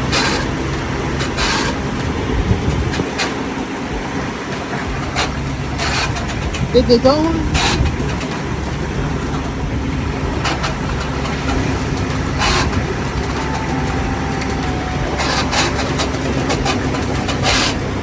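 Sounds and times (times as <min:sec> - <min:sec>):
bus engine idling: 0:00.0 - 0:18.0.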